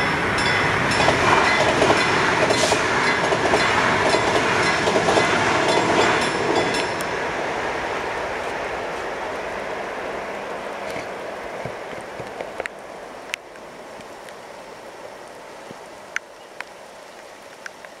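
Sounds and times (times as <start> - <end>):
electric train rushing on rails: 0.0 - 14.3.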